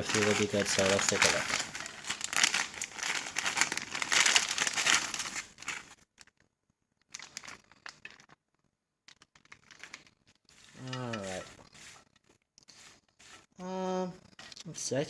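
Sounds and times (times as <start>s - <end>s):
plastic bag crinkling: 0.0s - 6.4s, 7.0s - 12.4s.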